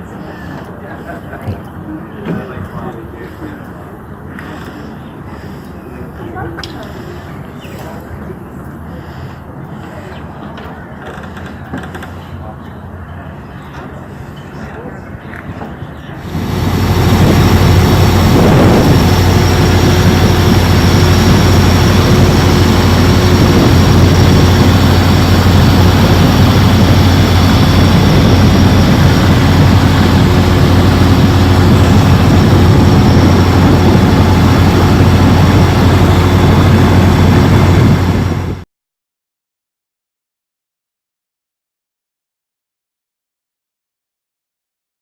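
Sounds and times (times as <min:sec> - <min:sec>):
engine drone: 0:16.0 - 0:38.6.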